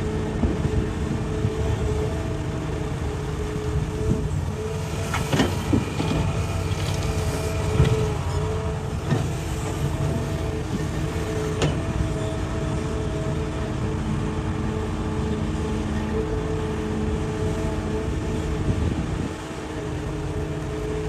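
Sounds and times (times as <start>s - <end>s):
diesel engine running: 0.0s - 21.0s
hydraulic whine: 0.0s - 21.0s.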